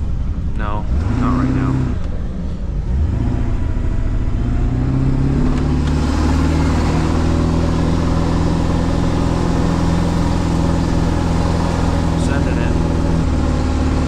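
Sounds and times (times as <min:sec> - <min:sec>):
truck engine pulling uphill: 0:00.0 - 0:14.0.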